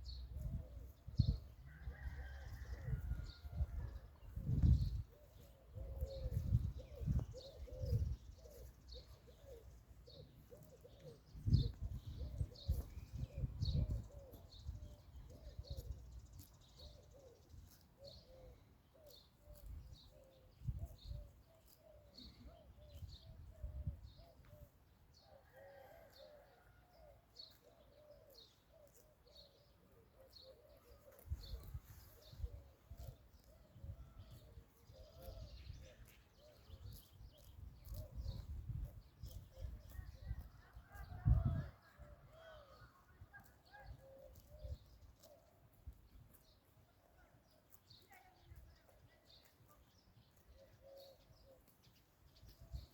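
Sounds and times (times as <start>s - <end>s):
pigeons cooing: 4.4s - 16.0s, 16.8s - 21.3s, 50.5s - 51.7s
small birds chirping: 4.5s - 24.7s, 27.4s - 41.6s, 47.4s - 52.9s.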